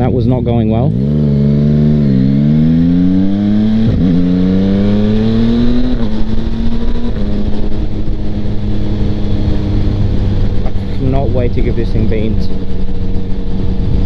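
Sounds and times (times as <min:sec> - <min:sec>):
motorcycle engine accelerating: 0:00.0 - 0:14.0
wind rushing on helmet mic: 0:03.1 - 0:14.0.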